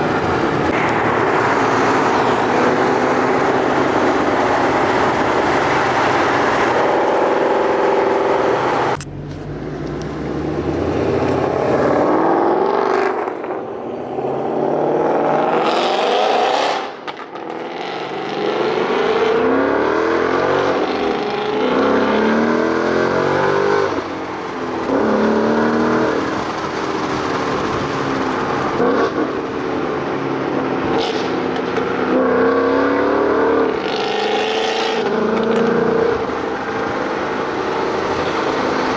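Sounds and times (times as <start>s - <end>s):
car engine revving through gears: 0.0s - 38.9s.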